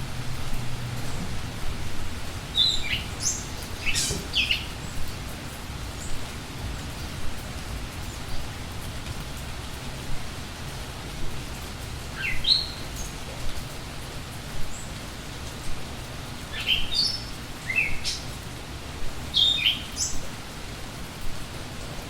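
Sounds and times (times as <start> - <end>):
steady rain falling: 0.0 - 22.0
songbird chirping: 2.5 - 5.1, 12.2 - 13.2, 19.3 - 20.3.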